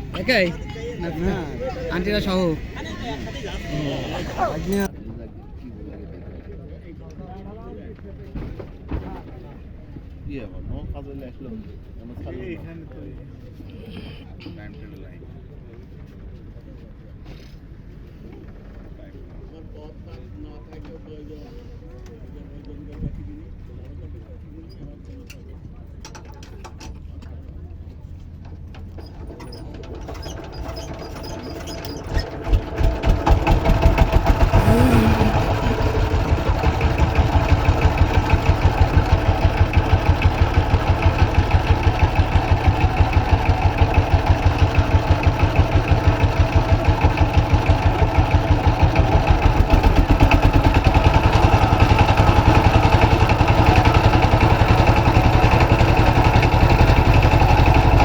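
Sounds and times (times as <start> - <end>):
boat engine running: 0.0 - 4.9, 32.3 - 58.0.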